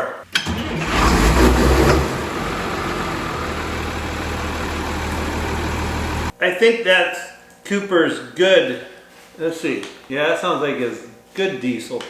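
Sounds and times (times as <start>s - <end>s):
vehicle engine starting and idling: 0.3s - 6.3s.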